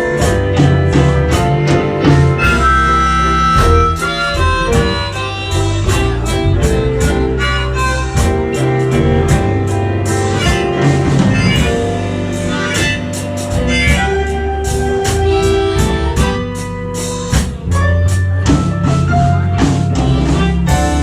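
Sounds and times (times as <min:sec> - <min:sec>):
blues band playing: 0:00.0 - 0:21.0
wailing lead melody: 0:00.0 - 0:21.0.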